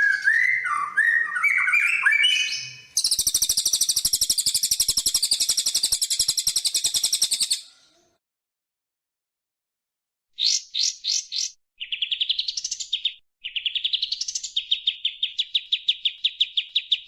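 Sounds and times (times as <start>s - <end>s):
songbird whistled notes: 0.0s - 7.7s.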